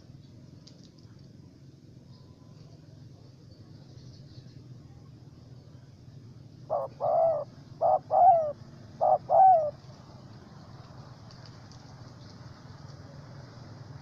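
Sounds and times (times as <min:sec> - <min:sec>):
dove cooing: 0:06.7 - 0:10.0.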